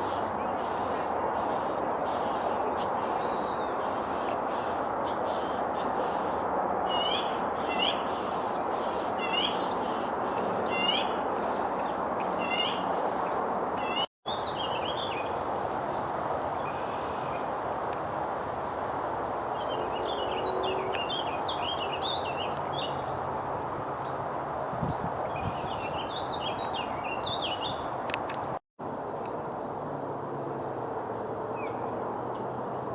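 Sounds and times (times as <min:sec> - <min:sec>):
small bird high call: 0:06.9 - 0:11.8, 0:12.4 - 0:12.9, 0:13.8 - 0:15.4.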